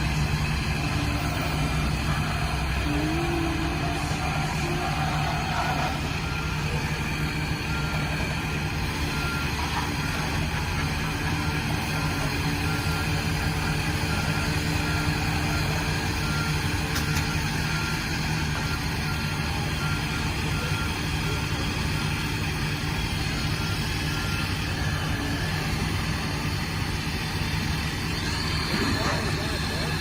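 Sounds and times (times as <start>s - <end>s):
truck engine idling: 0.0s - 30.0s.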